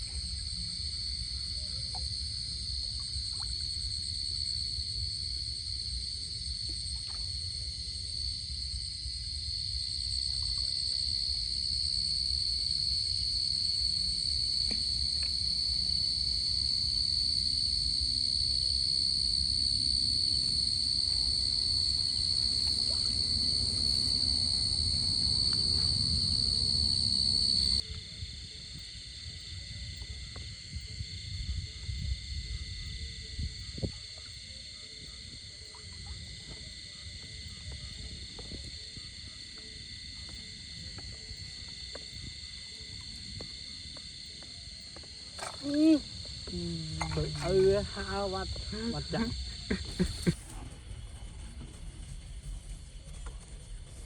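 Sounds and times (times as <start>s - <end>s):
insects droning: 0.0s - 54.0s
low outdoor rumble: 18.2s - 27.9s, 45.9s - 54.0s.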